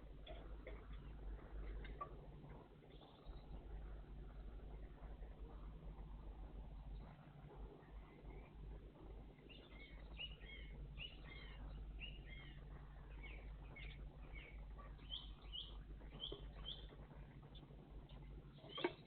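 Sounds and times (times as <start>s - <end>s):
steady low hum: 0.0s - 19.0s
songbird singing: 2.9s - 5.7s, 9.3s - 19.0s.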